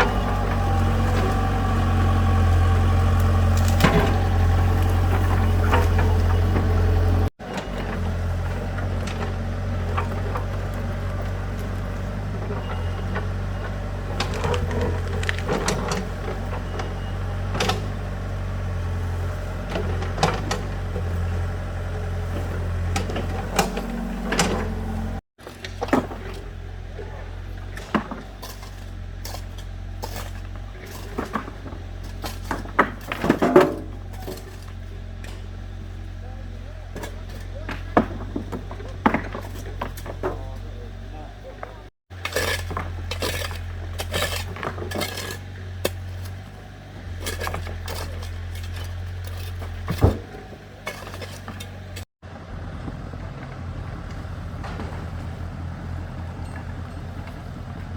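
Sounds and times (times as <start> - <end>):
vehicle engine droning: 0.0 - 57.9
knocks and clatter: 19.5 - 36.1, 36.9 - 52.1, 52.7 - 57.9
faint voices: 36.0 - 38.4, 40.2 - 41.9.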